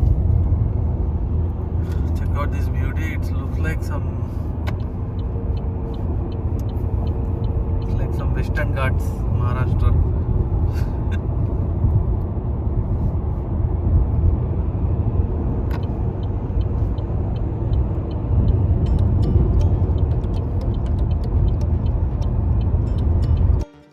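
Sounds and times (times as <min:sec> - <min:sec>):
car road and engine rumble: 0:00.0 - 0:23.7
light ticks: 0:04.6 - 0:08.6.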